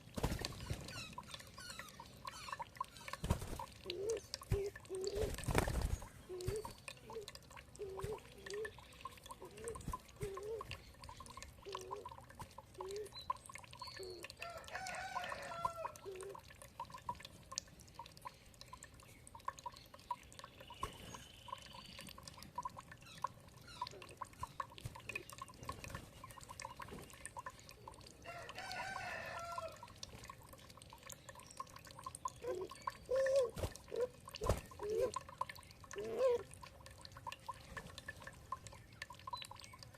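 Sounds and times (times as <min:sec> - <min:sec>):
water dripping and trickling: 0:00.0 - 0:39.9
rooster crowing: 0:14.4 - 0:16.0, 0:28.3 - 0:29.8.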